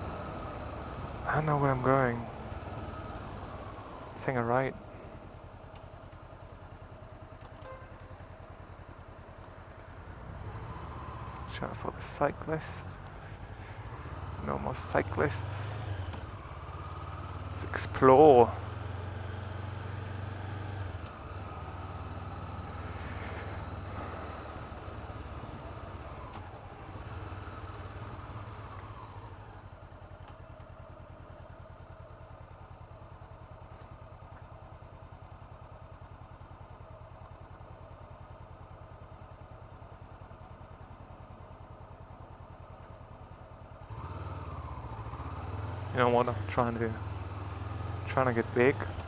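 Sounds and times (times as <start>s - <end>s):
motorcycle engine running: 0.0s - 49.0s
road noise: 0.0s - 49.0s.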